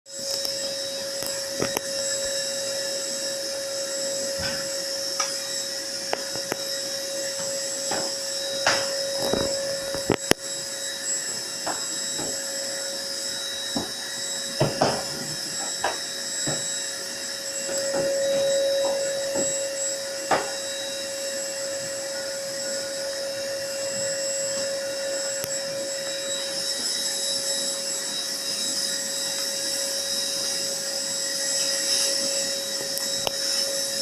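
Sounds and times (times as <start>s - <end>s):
motor whine and hum: 0.1s - 34.0s.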